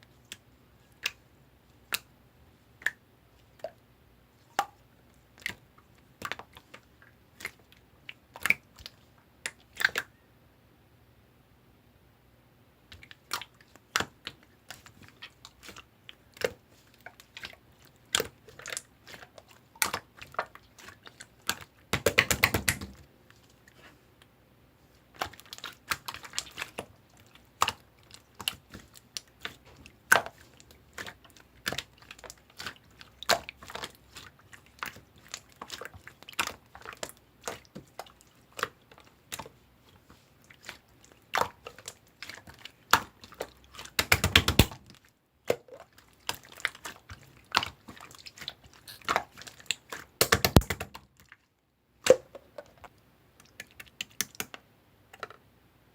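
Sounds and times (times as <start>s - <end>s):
slime clicking and popping: 21.4s - 23.0s, 44.0s - 44.8s, 50.2s - 51.0s.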